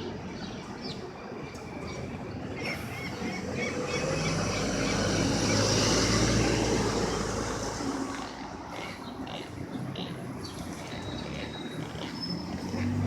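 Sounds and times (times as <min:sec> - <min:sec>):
vehicle passing by: 0:02.6 - 0:13.0.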